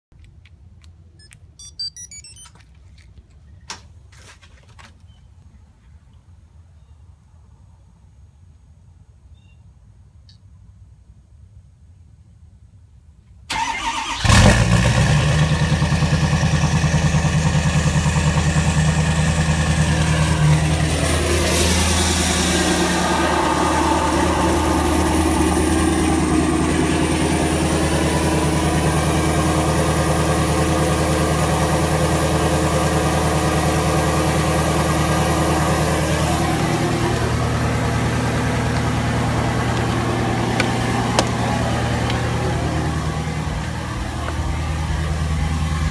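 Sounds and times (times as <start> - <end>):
diesel truck engine starting and idling: 13.5 - 45.9.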